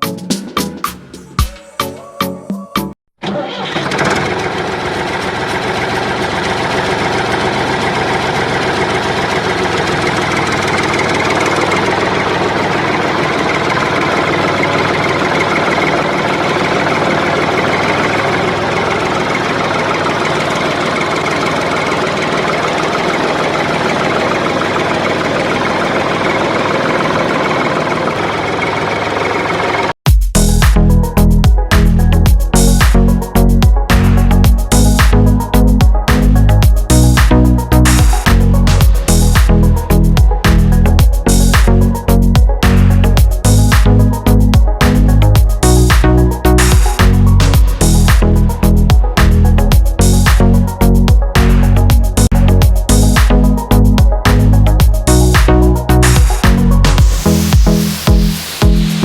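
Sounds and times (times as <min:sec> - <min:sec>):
motor running: 0:03.8 - 0:30.0, 0:33.9 - 0:59.0.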